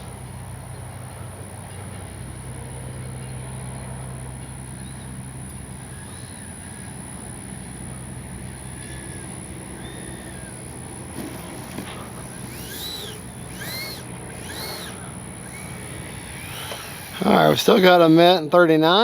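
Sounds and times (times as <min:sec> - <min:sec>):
electric ducted fan whining: 0:00.0 - 0:19.0
faint chirps: 0:07.9 - 0:10.7, 0:12.3 - 0:18.0.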